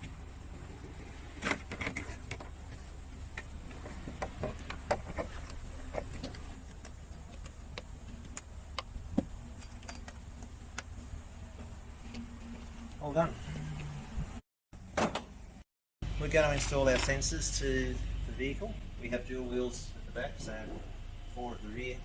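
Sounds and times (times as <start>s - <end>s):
low hum: 0.0s - 14.4s.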